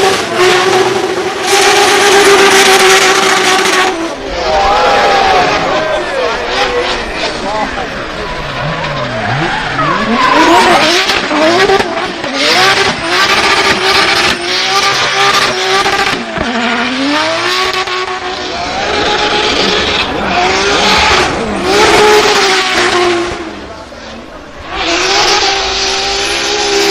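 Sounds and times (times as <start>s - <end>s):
car engine revving: 0.0s - 26.9s
tyres sliding and squealing: 4.1s - 11.8s.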